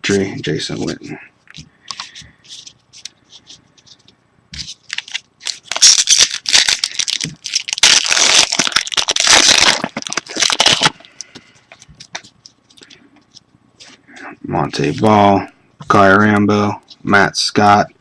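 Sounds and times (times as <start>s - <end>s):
foil wrapper tearing and crinkling: 4.8s - 11.2s.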